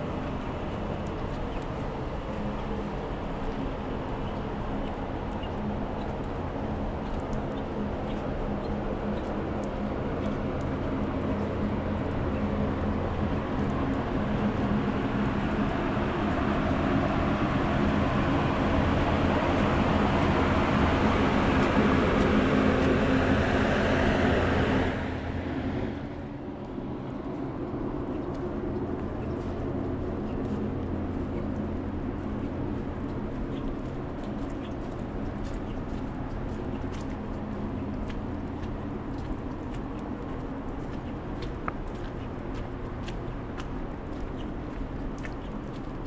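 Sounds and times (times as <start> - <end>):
vehicle engine humming: 9.8 - 40.8.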